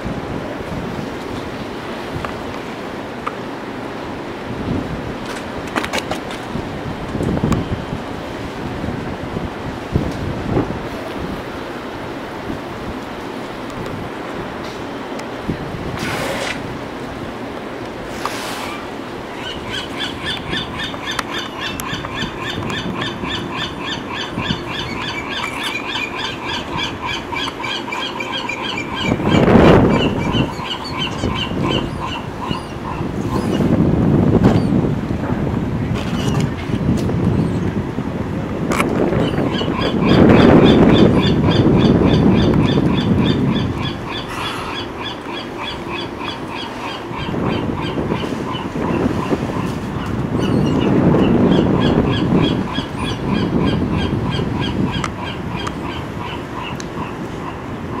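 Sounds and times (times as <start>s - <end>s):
rush of wind or water: 0.0s - 58.0s
bird squealing calls: 19.3s - 33.6s, 39.2s - 49.7s.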